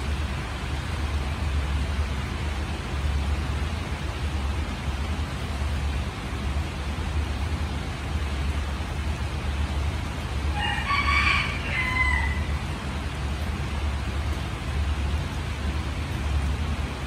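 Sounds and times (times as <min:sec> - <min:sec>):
steady rain: 0:00.0 - 0:17.0
rooster crowing: 0:10.5 - 0:12.7.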